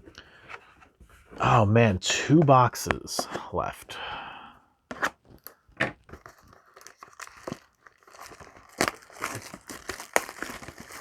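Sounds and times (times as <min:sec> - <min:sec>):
card packaging crinkling and tearing: 0:05.4 - 0:11.0.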